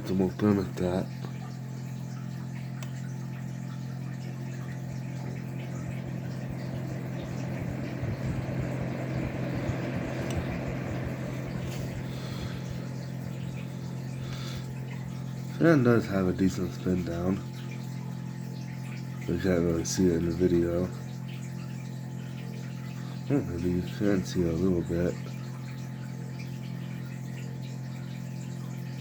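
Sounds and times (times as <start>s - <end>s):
space heater fan humming: 0.0s - 29.0s
rush of air from fan: 5.3s - 15.1s.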